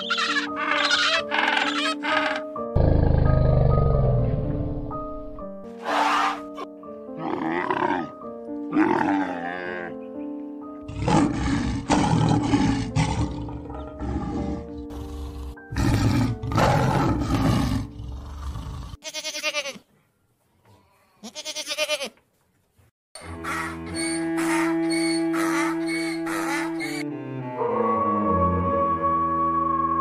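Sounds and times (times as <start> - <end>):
goat bleating: 0.0 - 2.0, 19.0 - 19.9, 21.2 - 22.2
background music: 0.0 - 18.5, 23.2 - 30.0
tigers roaring: 10.9 - 19.0.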